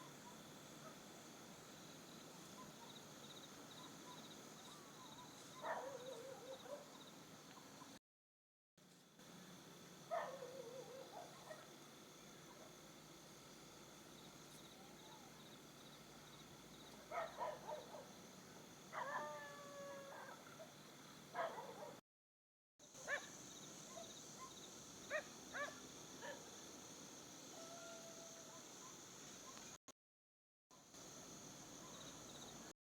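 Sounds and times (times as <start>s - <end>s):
insects chirring: 0.0s - 8.0s, 9.2s - 21.9s, 22.9s - 29.8s, 30.9s - 32.7s
faint dog barks: 2.5s - 3.1s, 3.8s - 8.0s, 10.1s - 11.8s, 12.4s - 12.8s, 16.9s - 18.2s, 18.9s - 22.0s, 23.0s - 26.5s, 27.5s - 29.8s, 31.8s - 32.2s
dog yelping: 5.6s - 6.9s.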